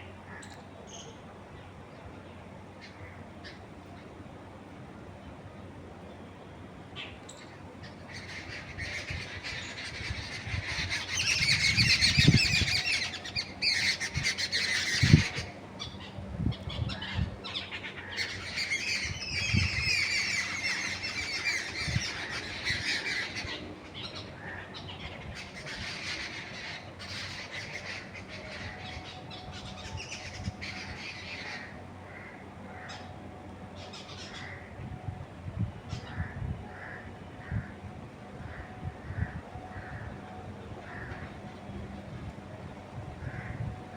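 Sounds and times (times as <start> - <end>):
birds chattering: 6.9 - 34.8, 35.8 - 42.2.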